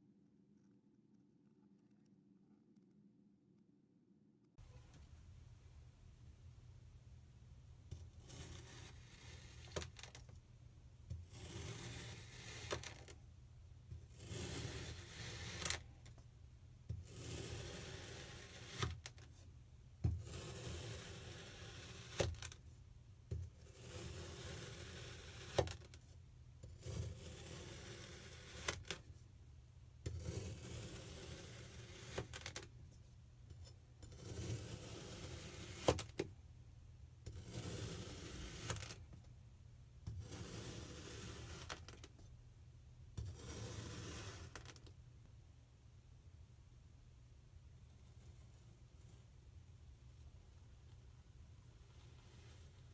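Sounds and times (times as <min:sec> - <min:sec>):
knife cutting kinetic sand: 0:07.9 - 0:10.2, 0:11.1 - 0:13.2, 0:13.9 - 0:16.2, 0:16.9 - 0:19.3, 0:20.1 - 0:22.6, 0:23.3 - 0:26.0, 0:26.6 - 0:29.1, 0:30.0 - 0:32.7, 0:33.5 - 0:36.2, 0:37.3 - 0:39.0, 0:40.0 - 0:42.1, 0:43.2 - 0:44.8, 0:51.8 - 0:52.9.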